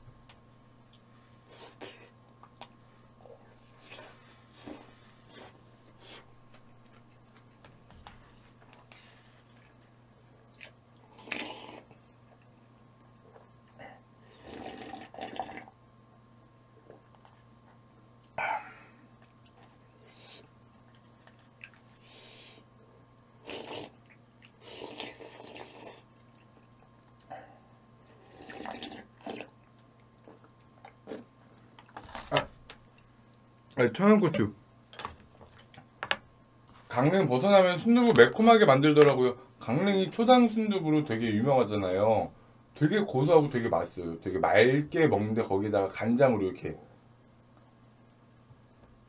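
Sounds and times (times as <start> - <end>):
steady low hum: 0.0 - 49.0
person chewing food: 0.9 - 7.7, 8.6 - 15.7, 19.1 - 22.6, 23.4 - 27.3, 28.1 - 32.2
chewing: 9.4 - 13.8, 19.2 - 22.1
noisy mouth sounds: 10.6 - 12.0, 13.8 - 15.8, 23.4 - 26.1, 28.1 - 29.6, 30.3 - 31.3.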